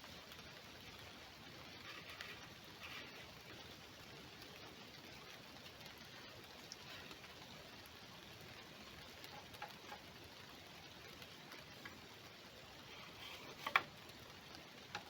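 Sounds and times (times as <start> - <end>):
faint outdoor hiss: 0.0 - 15.0
light ticks: 12.9 - 15.0.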